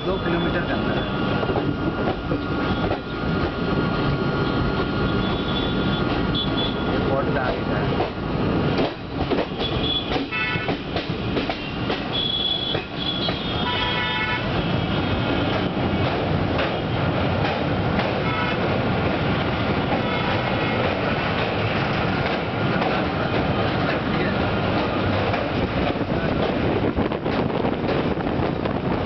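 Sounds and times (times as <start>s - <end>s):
train wheels rumbling on track: 0.0s - 29.0s
train horn toots: 5.2s - 7.0s, 9.6s - 10.8s, 11.7s - 15.6s, 18.2s - 18.7s, 20.0s - 20.9s.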